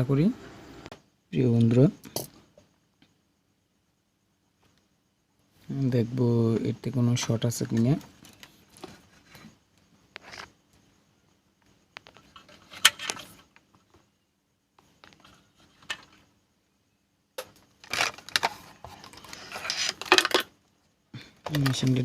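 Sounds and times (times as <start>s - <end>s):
small tools clicking and knocking: 17.4s - 20.6s
rubbing and scraping: 17.8s - 20.3s.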